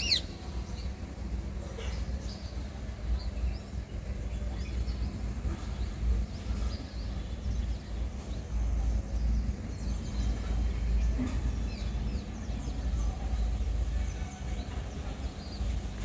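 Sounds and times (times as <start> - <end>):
small birds chirping: 0.0 - 1.1.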